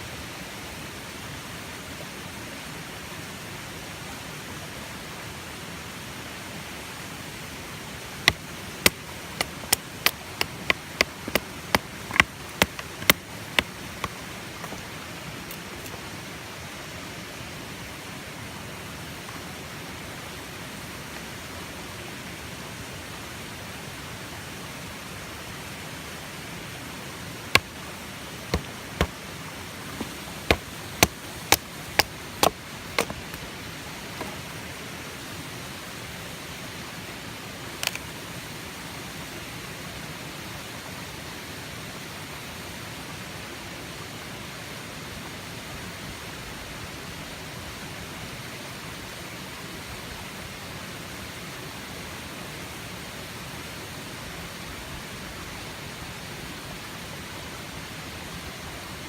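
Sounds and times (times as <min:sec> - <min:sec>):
sharp knocks: 0:08.3 - 0:14.8, 0:28.5 - 0:29.2, 0:30.0 - 0:33.4.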